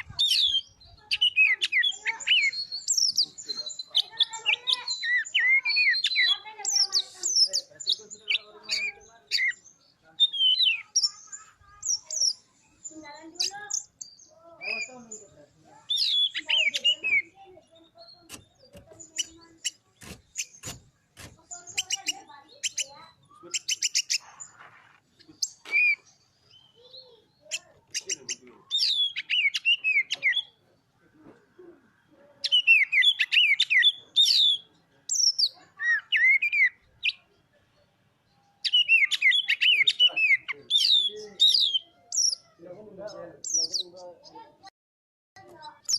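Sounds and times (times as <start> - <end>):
bird singing whistled phrases: 10.2 - 12.4, 25.4 - 27.0, 28.0 - 30.6, 32.4 - 37.2, 38.6 - 42.4.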